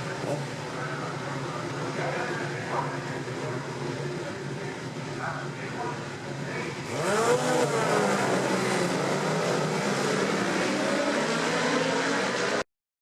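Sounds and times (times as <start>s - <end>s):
racing motorcycle engines passing: 6.8s - 12.6s.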